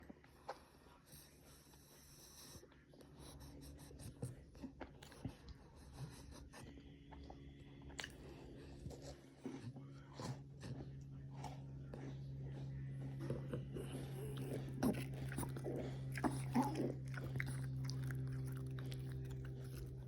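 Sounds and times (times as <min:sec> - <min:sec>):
low steady hum: 0:00.0 - 0:20.0
dog sniffling and wheezing: 0:00.7 - 0:04.5, 0:05.3 - 0:06.8, 0:12.0 - 0:20.0.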